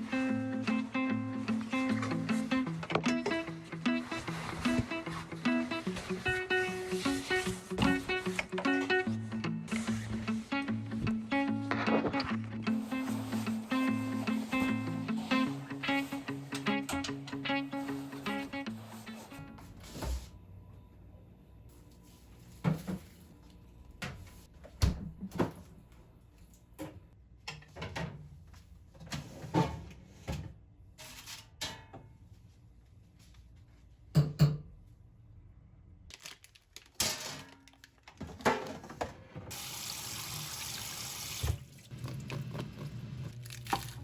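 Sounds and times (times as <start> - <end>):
knocks and clinks in kitchen: 26.8 - 28.3, 34.1 - 34.8.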